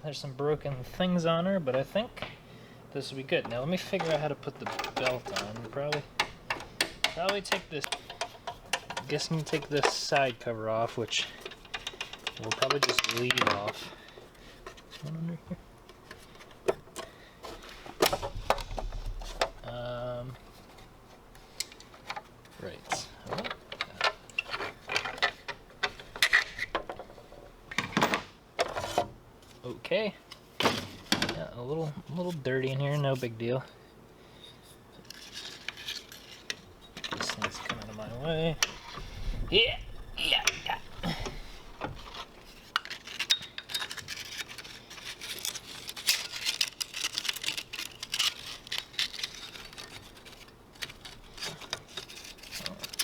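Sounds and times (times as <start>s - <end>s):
metallic clicks and knocks: 3.4s - 13.8s.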